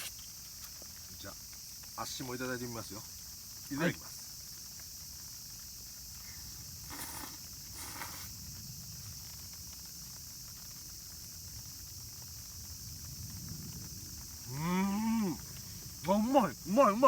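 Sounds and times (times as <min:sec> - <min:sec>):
insects chirring: 0:00.0 - 0:17.0
rustling: 0:06.3 - 0:08.4.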